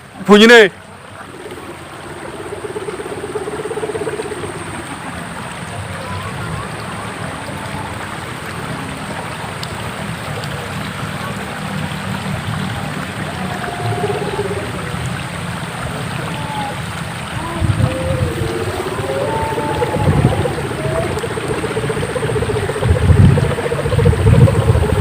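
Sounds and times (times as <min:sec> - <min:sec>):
kite hummer droning: 0:00.0 - 0:25.0
wind on microphone: 0:12.4 - 0:25.0.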